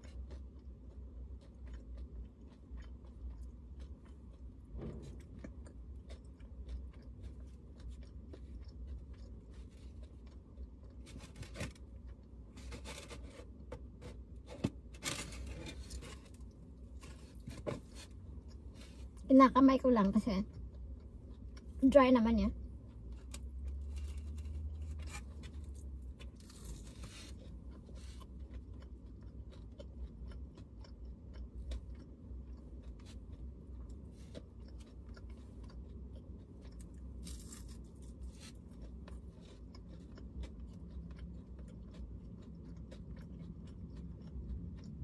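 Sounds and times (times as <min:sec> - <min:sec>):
chewing and crunching dry food: 0:00.0 - 0:45.0
steady low hum: 0:00.0 - 0:45.0.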